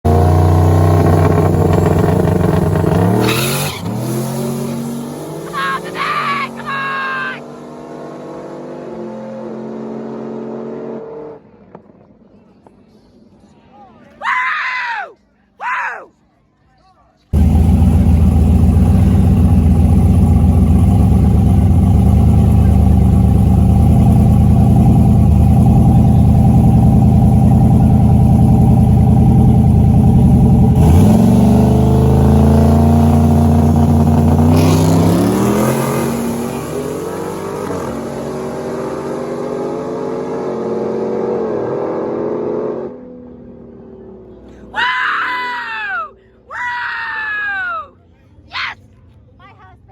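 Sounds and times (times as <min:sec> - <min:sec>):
drag racing engines revving: 0:00.1 - 0:11.4, 0:17.4 - 0:44.5.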